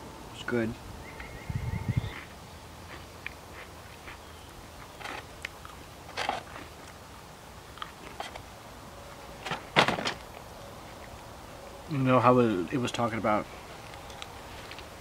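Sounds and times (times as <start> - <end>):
crunchy cookie chewing: 2.1 - 7.0, 7.7 - 8.4.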